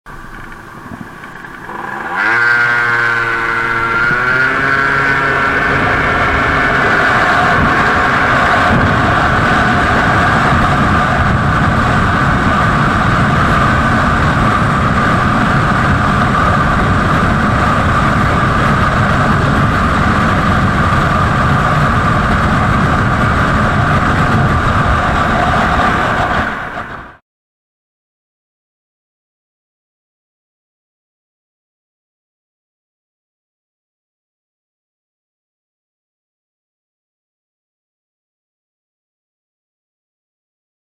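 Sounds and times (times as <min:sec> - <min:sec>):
wind rushing: 0:00.2 - 0:27.2
scooter engine revving: 0:00.3 - 0:26.8.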